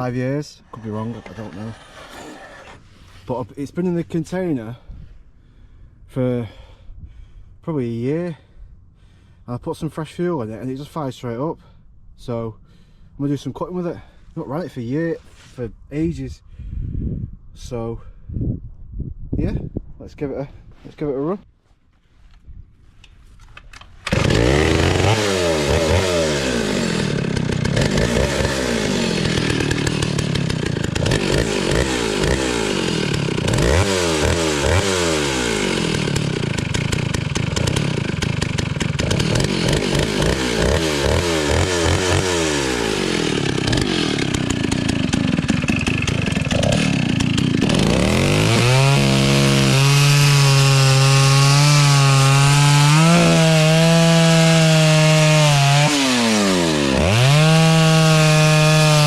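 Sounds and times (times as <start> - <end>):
chainsaw revving: 0.7 - 3.1, 24.1 - 59.0.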